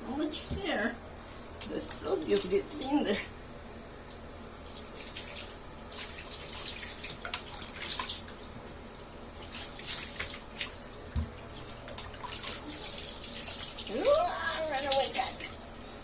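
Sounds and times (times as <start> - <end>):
tap water running and splashing: 4.0 - 15.6.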